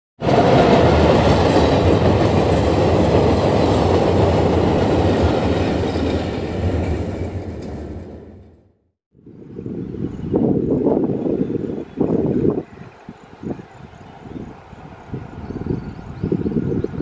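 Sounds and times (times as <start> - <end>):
train wheels rumbling on rails: 0.2 - 8.7.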